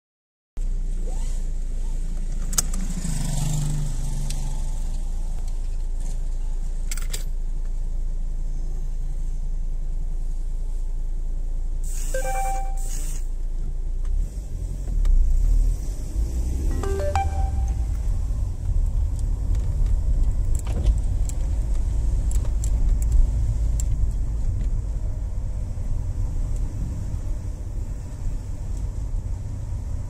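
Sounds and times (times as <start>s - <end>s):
car pulling away: 12.0s - 30.0s.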